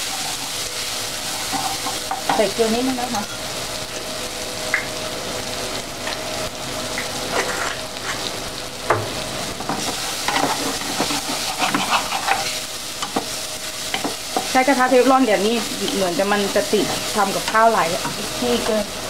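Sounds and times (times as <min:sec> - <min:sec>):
chili paste sizzling in oil: 0:00.0 - 0:19.0
wooden spatula scraping pan: 0:09.8 - 0:13.2.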